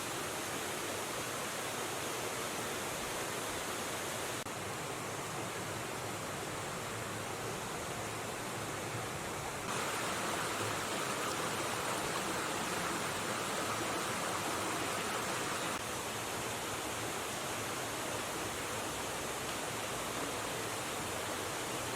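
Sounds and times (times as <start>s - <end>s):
river water rushing: 9.7s - 21.9s.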